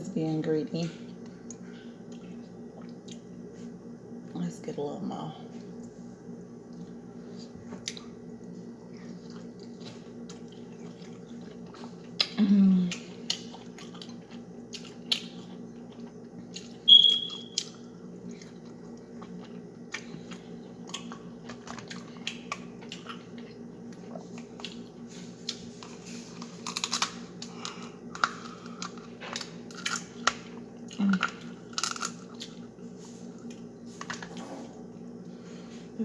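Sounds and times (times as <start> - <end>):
steady low hum: 0.0 - 36.0
wet chewing: 7.8 - 32.7.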